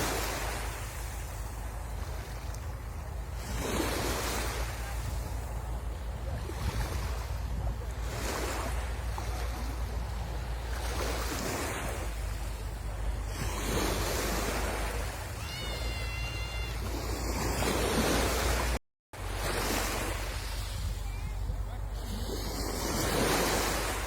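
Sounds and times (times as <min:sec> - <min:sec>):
sea waves breaking on beach: 0:00.0 - 0:24.0.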